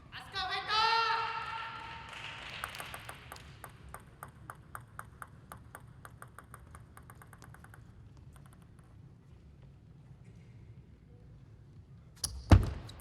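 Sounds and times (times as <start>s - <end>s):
table tennis ball bouncing: 2.1s - 9.3s.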